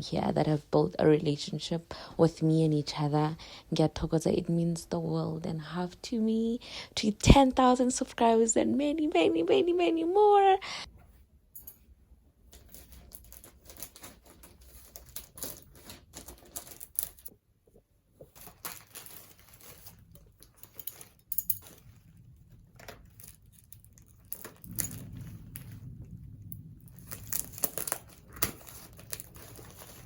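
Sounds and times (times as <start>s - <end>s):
small objects clicking and tapping: 12.5s - 30.0s.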